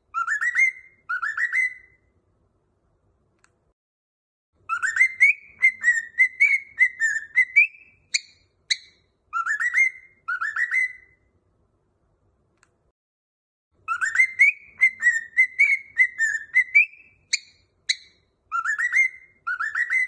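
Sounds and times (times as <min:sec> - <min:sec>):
cockatiel whistling: 0:00.1 - 0:02.0, 0:04.7 - 0:11.2, 0:13.8 - 0:20.0.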